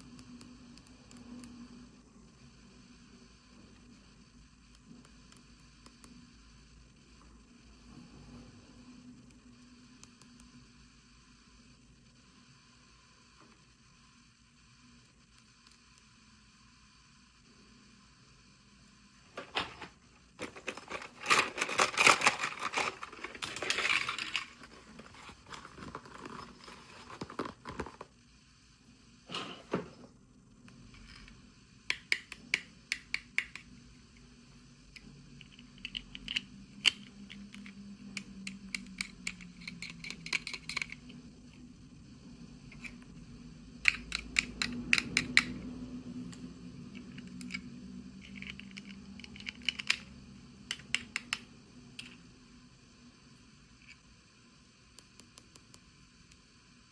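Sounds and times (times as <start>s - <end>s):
plastic toys clicking: 20.4s - 24.6s, 35.4s - 41.1s, 43.8s - 45.6s, 48.2s - 50.1s
packaging crinkling and rustling: 20.4s - 28.1s.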